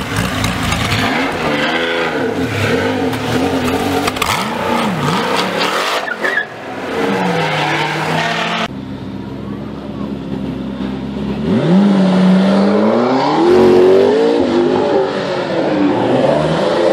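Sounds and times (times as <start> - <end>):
sports car engine revving: 0.0 - 8.7.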